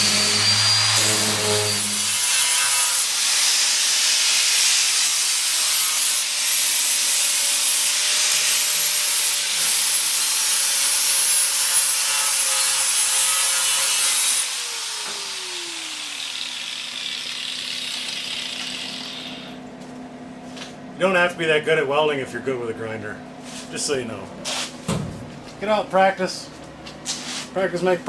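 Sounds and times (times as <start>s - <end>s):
angle grinder grinding metal: 0.0s - 19.6s.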